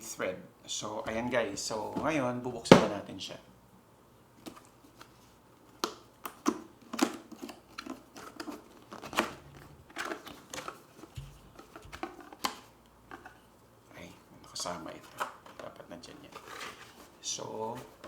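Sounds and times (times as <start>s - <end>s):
cardboard packaging rustling: 6.4s - 13.5s, 14.8s - 18.0s.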